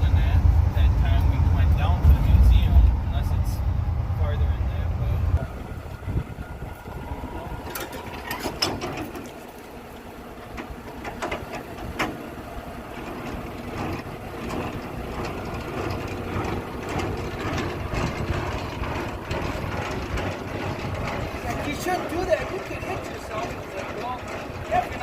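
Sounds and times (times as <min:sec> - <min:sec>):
road noise: 0:00.0 - 0:25.0
truck diesel engine from cab: 0:00.0 - 0:25.0
clicks and rattles: 0:07.5 - 0:09.7, 0:10.5 - 0:12.3, 0:12.9 - 0:25.0.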